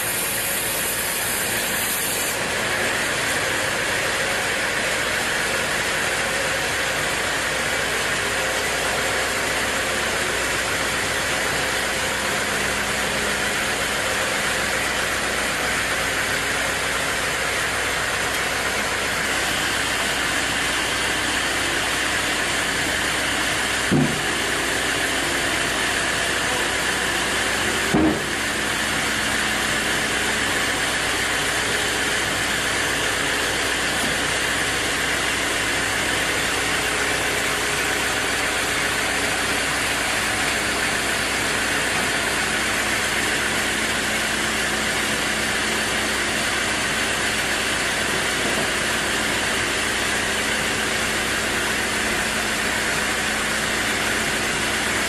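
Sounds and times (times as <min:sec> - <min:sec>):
sawmill machinery humming: 0:00.0 - 0:55.0
loud knock: 0:23.9 - 0:24.4, 0:27.9 - 0:28.4.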